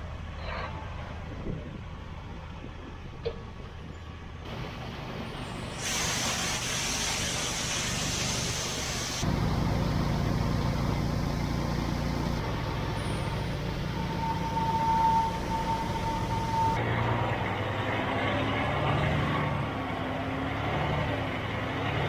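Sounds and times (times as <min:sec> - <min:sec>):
heavy vehicle engine running: 0:00.0 - 0:22.0
loud hiss: 0:04.5 - 0:16.8
steady whine: 0:09.2 - 0:16.8.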